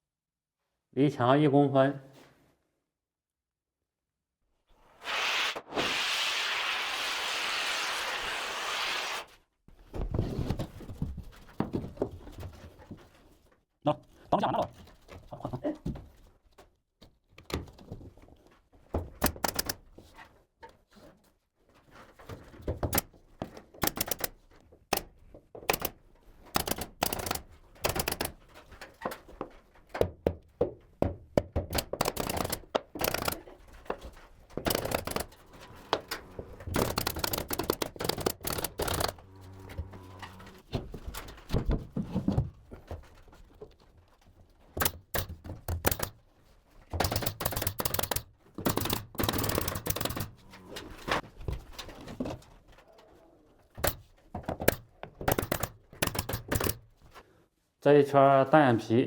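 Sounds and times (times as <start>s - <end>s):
sharp knocks and clicks: 19.0s - 19.9s, 22.6s - 39.2s, 44.7s - 46.2s, 46.9s - 50.6s, 53.8s - 57.0s.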